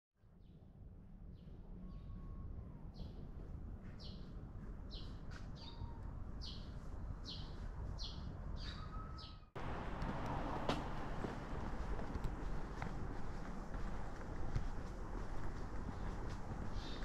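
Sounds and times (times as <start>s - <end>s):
outdoor noise: 0.2s - 17.0s
bird chirping: 4.9s - 9.6s, 16.7s - 17.0s
thin bird whistles: 8.6s - 9.5s.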